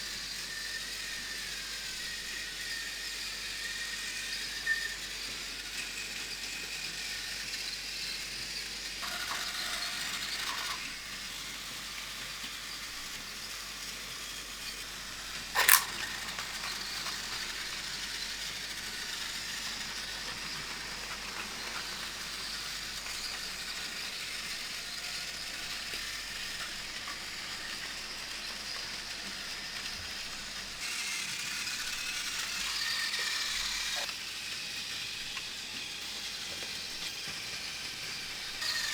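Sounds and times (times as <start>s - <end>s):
toy trains whirring and rattling: 0.0s - 38.9s
sharp click: 15.6s - 16.4s.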